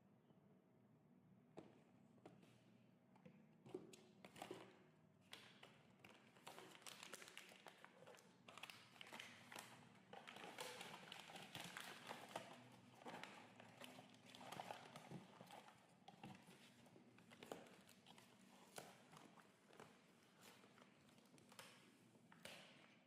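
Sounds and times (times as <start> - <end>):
packaging rustling: 6.1 - 21.7.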